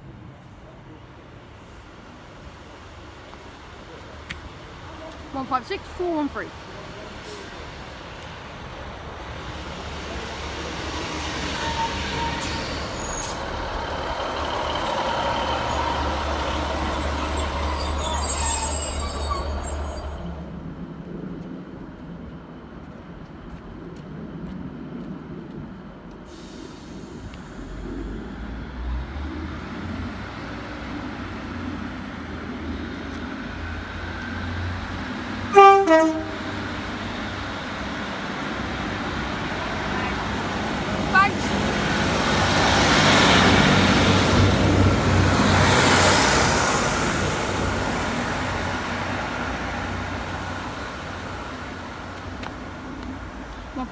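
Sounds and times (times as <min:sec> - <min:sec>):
train rumbling past: 0:00.0 - 0:53.9
train horn toot: 0:35.5 - 0:36.7.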